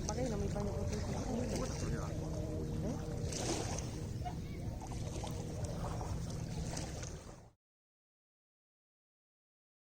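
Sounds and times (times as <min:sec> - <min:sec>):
lake water lapping at shore: 0:00.0 - 0:07.6.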